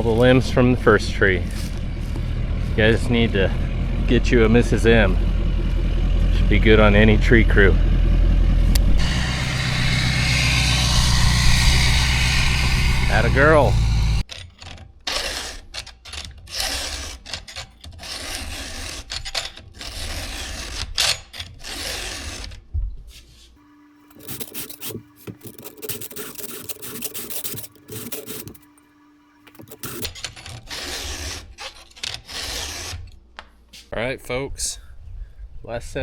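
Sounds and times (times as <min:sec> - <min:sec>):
file rasping on chainsaw chain: 0:09.0 - 0:22.6, 0:24.1 - 0:28.8, 0:29.5 - 0:33.1.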